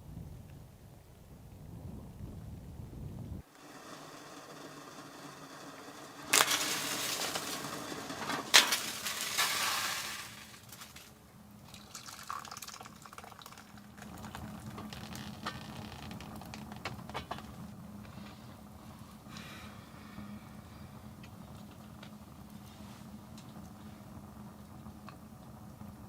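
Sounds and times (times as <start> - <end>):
water hissing and rushing: 3.4 - 11.0
faint crackles: 3.4 - 19.7.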